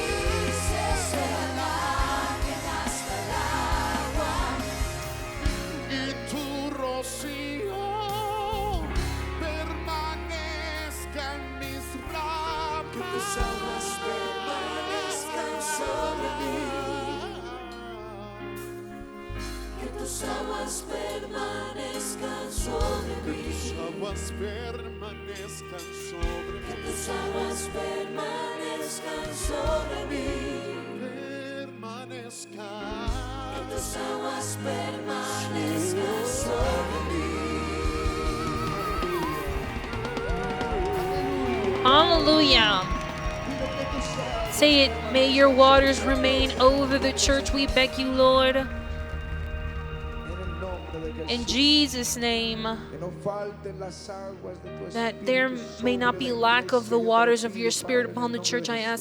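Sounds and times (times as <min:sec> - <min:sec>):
steady beat: 0:00.0 - 0:06.3
sustained bass chords: 0:00.0 - 0:31.8, 0:32.8 - 0:53.8
choir singing gospel song: 0:00.0 - 0:59.0.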